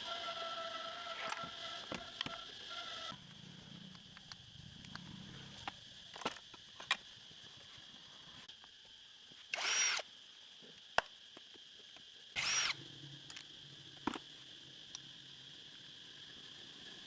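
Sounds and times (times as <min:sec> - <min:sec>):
power tool bursts: 0:09.5 - 0:10.0, 0:12.4 - 0:12.8.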